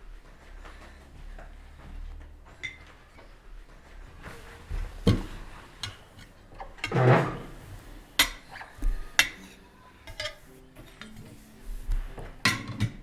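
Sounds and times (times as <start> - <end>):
dishes clattering: 2.5 - 13.0
cutlery clinking on plates: 2.6 - 3.3, 4.2 - 13.0.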